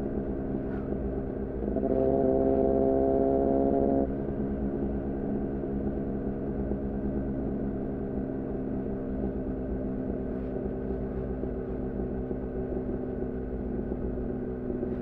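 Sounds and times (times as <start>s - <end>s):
motorcycle engine droning: 0.2s - 5.0s.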